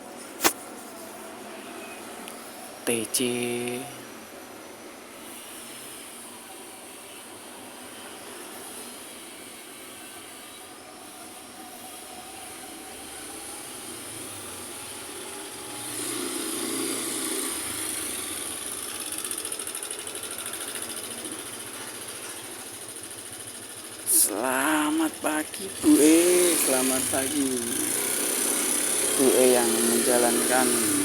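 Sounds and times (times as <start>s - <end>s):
street traffic passing: 0.0s - 31.0s
vehicle passing close: 13.8s - 18.9s, 25.7s - 31.0s.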